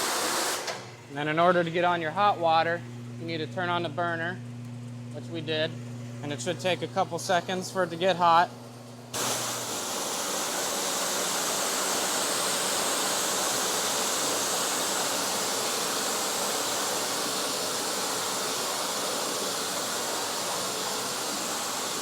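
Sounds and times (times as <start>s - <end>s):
pressure washer water jet hiss: 0.0s - 0.8s, 9.1s - 22.0s.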